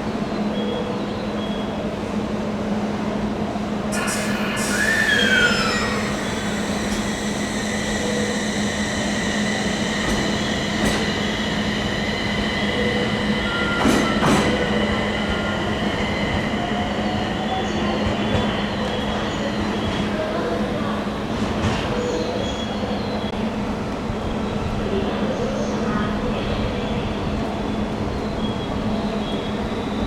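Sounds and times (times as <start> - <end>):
train wheels squealing on rails: 3.9 - 30.0
low hum: 4.0 - 15.0.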